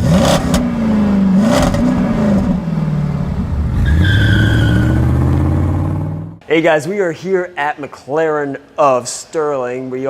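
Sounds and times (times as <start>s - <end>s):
car engine revving: 0.0s - 6.4s.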